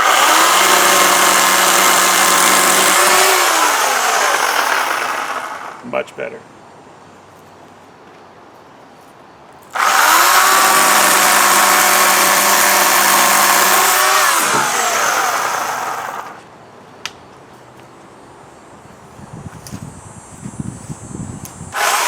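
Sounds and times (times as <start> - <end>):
electric chainsaw running: 0.0 - 5.9, 9.8 - 16.5, 21.7 - 22.0.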